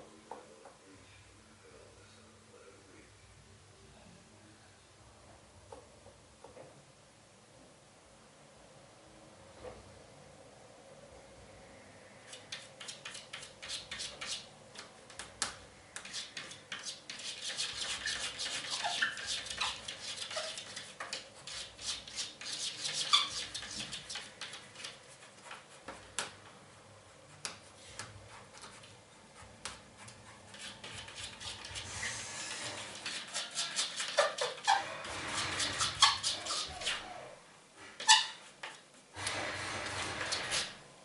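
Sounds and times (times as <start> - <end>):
cat claws scratching glass: 12.3 - 26.4, 29.6 - 31.9, 32.6 - 37.0.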